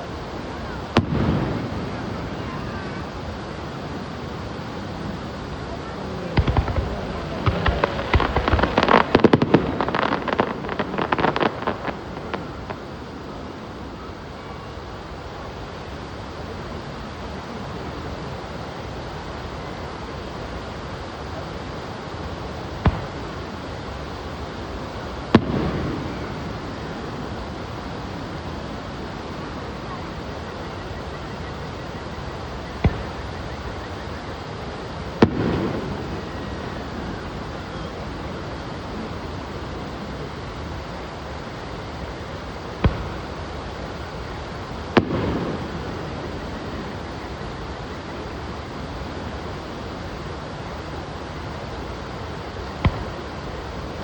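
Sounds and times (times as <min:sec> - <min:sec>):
fireworks bursting with bangs: 0:00.0 - 0:54.0
steady background hiss: 0:00.0 - 0:54.0
firework bang with rumbling tail: 0:00.9 - 0:03.1, 0:06.2 - 0:13.0, 0:22.7 - 0:23.6, 0:25.3 - 0:27.3, 0:32.7 - 0:33.3, 0:35.1 - 0:37.1, 0:42.7 - 0:44.0, 0:44.9 - 0:47.0, 0:52.8 - 0:53.4
rumbling echo: 0:06.4 - 0:12.9.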